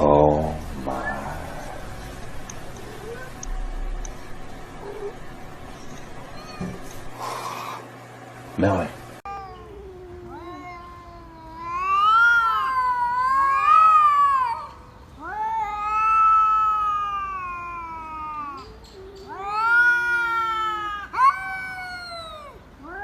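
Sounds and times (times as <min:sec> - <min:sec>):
cat yowling: 0:02.7 - 0:03.5, 0:06.3 - 0:06.9, 0:09.2 - 0:23.0.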